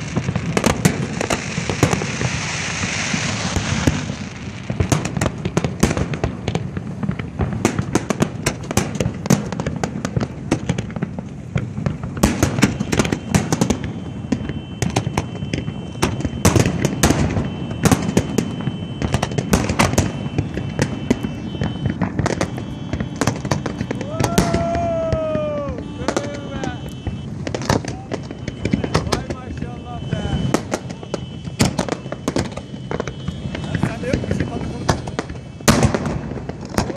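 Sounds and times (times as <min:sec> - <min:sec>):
fireworks bangs and crackles: 0:00.0 - 0:36.9
falling whistle tone: 0:12.7 - 0:27.3.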